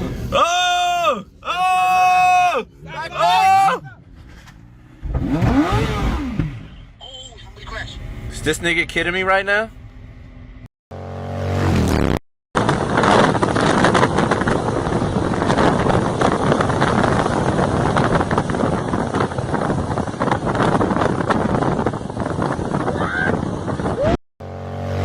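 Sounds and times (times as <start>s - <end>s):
wind rushing over microphone: 11.8s - 24.2s.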